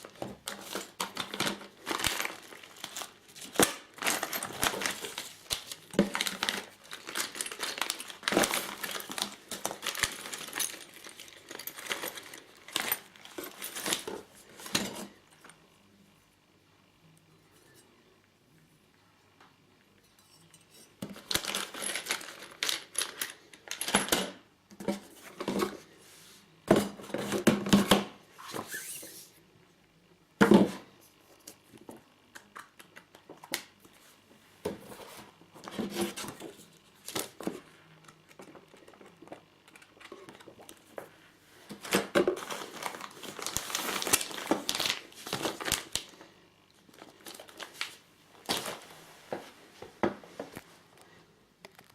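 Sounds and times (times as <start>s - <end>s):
packaging crinkling and tearing: 0.0s - 14.1s, 41.8s - 46.2s, 46.8s - 48.8s.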